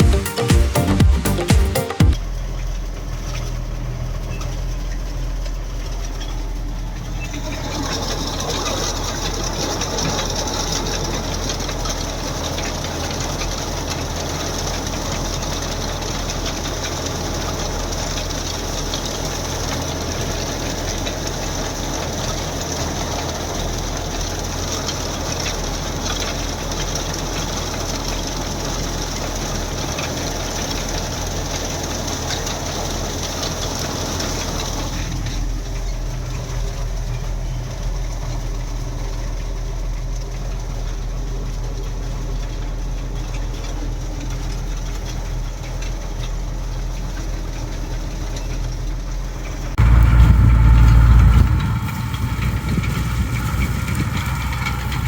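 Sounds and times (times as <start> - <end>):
diesel tractor engine running: 0.0 - 55.0
rushing rattling machine noise: 49.8 - 55.0.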